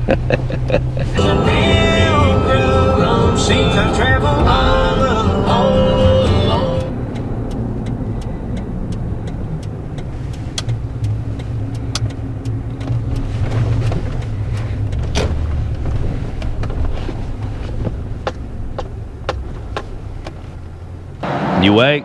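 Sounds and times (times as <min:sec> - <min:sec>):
car engine and tyre rumble: 0:00.0 - 0:22.0
faint evenly spaced ticks: 0:05.8 - 0:13.3.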